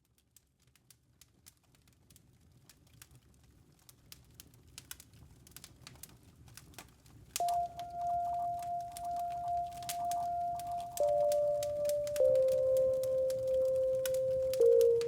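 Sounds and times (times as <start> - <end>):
campfire crackling and popping: 3.9 - 15.0
steady ringing tone: 7.4 - 15.0.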